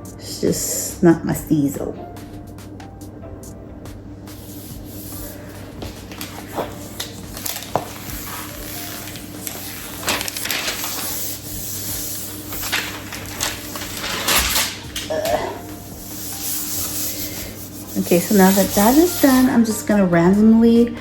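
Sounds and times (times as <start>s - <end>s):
paper and foam-board handling: 4.4s - 15.2s
scraping rustles: 4.6s - 19.5s.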